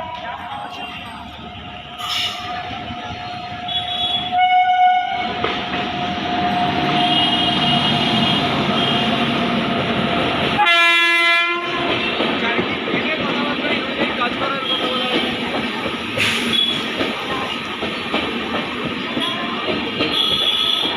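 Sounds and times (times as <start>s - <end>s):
train wheels rumbling on rails: 0.0s - 20.9s
train horn blasts: 3.6s - 5.4s, 6.7s - 9.3s, 10.6s - 12.2s, 19.2s - 20.9s.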